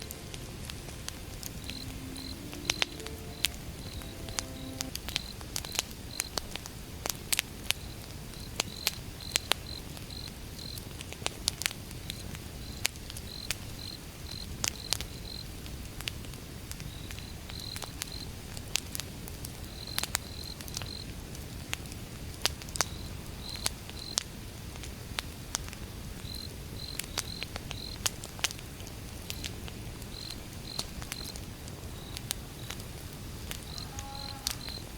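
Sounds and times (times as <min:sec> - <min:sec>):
campfire crackling and popping: 0:00.0 - 0:34.9
crickets chirping: 0:01.2 - 0:06.3, 0:33.6 - 0:34.9.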